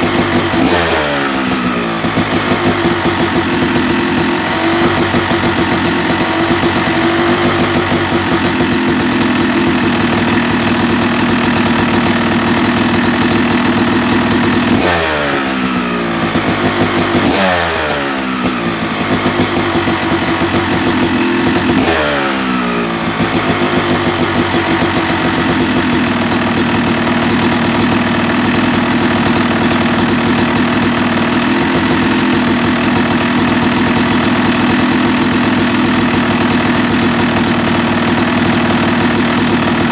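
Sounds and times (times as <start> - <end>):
motocross engine idling and revving: 0.0 - 39.9.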